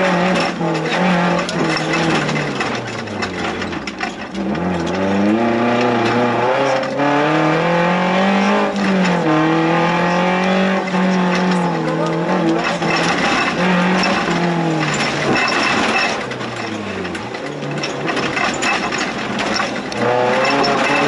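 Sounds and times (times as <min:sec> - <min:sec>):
car engine revving: 0:00.0 - 0:21.0
car knocks and rattles: 0:00.0 - 0:21.0.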